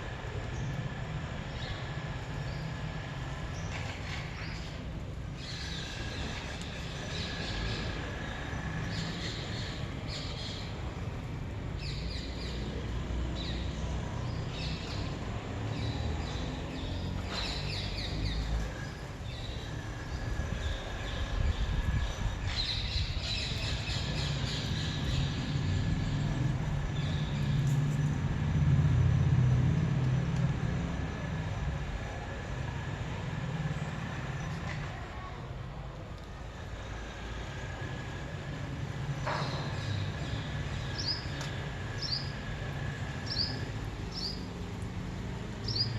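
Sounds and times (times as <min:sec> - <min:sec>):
small birds chirping: 0:00.1 - 0:28.2, 0:38.2 - 0:45.9.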